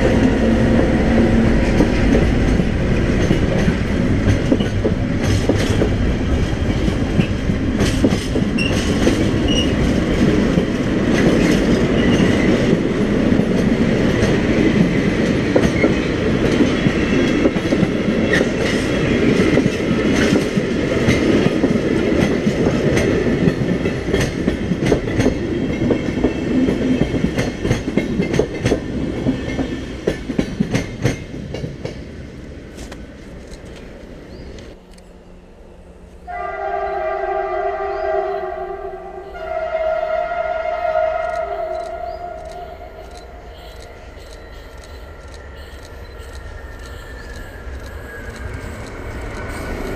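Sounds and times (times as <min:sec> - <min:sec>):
freight train wheels clattering: 0:00.0 - 0:33.9.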